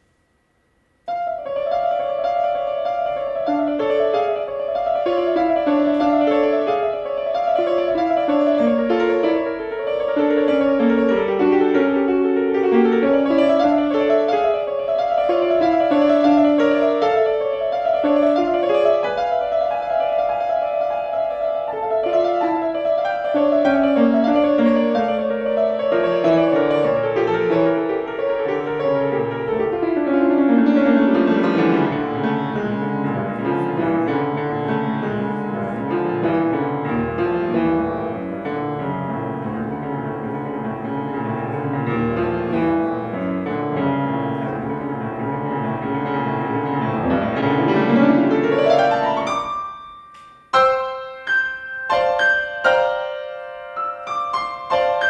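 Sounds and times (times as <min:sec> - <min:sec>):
loud piano chords: 0:00.0 - 0:55.0
solo piano playing fast runs: 0:01.0 - 0:55.0.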